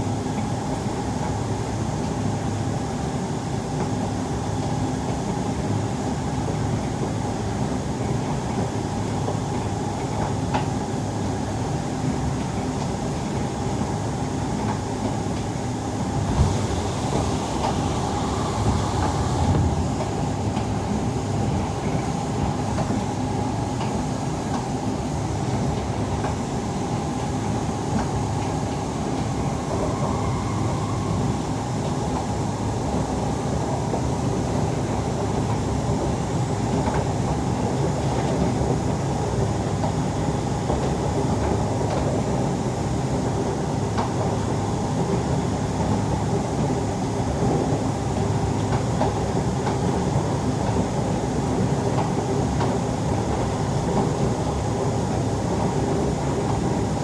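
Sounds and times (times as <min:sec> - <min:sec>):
train wheels rumbling on rail: 0:00.1 - 0:57.0
steady hum: 0:11.3 - 0:36.7.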